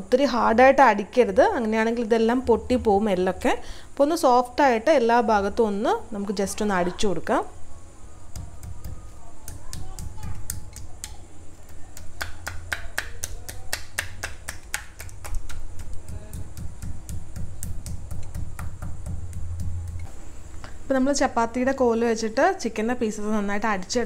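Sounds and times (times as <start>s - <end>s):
steady low hum: 0.0s - 24.0s
rolling pin tapping raw meat: 8.3s - 13.7s, 15.0s - 20.0s.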